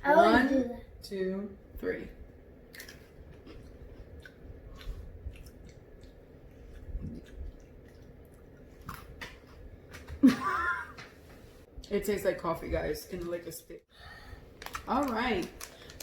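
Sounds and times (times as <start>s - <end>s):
people crunching biscuit sticks: 14.6s - 16.0s.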